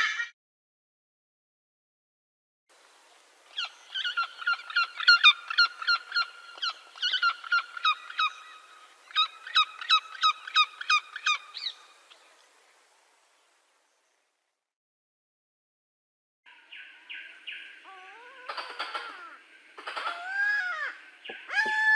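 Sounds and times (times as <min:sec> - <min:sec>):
bird of prey calling: 0:03.5 - 0:12.2, 0:16.6 - 0:21.9.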